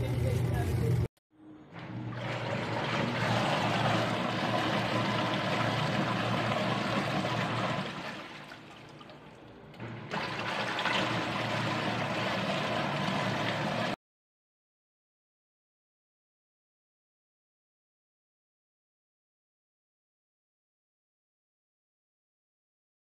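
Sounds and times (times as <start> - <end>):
water running in washing machine: 1.8 - 14.0.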